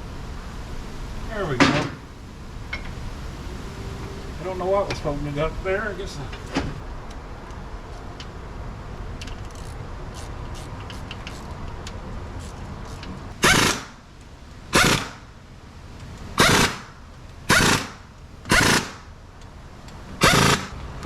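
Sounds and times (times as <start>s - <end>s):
air impact wrench bursts: 13.4s - 14.0s, 14.7s - 15.2s, 16.4s - 16.9s, 17.5s - 19.1s, 20.2s - 20.8s.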